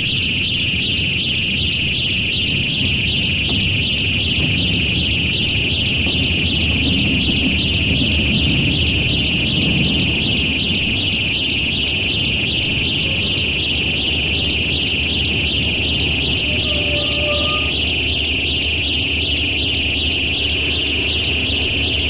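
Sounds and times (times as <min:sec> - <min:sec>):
train low rumble: 0:00.0 - 0:22.0
distant horn tone: 0:12.1 - 0:22.0
high-pitched fluttering squeal: 0:15.9 - 0:18.0.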